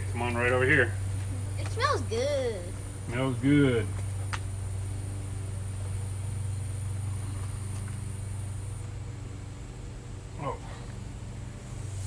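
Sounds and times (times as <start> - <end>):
low hum: 2.6 - 12.0
steady hiss: 10.4 - 12.0.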